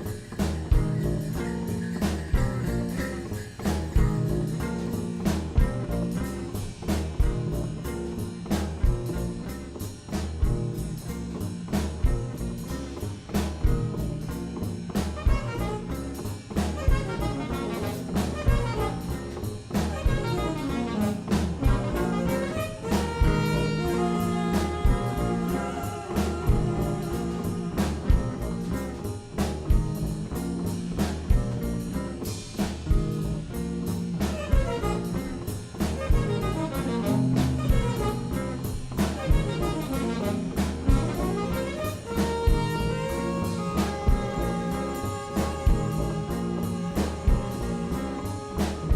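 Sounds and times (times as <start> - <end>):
bass line: 0.0 - 48.9
drum kit beat: 0.0 - 48.9
horns holding long notes: 15.2 - 28.9, 34.3 - 48.9.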